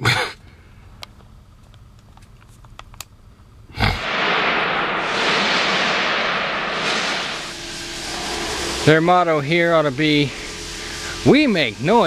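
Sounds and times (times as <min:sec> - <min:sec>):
loud hissing rush: 0:03.8 - 0:12.0
sudden bang: 0:04.0 - 0:10.6.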